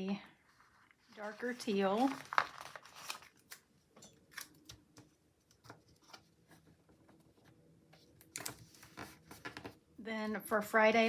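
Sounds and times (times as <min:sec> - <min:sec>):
paper rustling: 0:00.5 - 0:03.7, 0:08.3 - 0:09.8.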